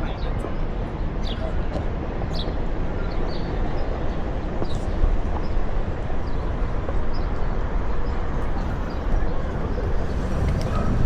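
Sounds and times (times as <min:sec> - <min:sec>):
board wheel rolling over pavement: 0:08.2 - 0:11.0.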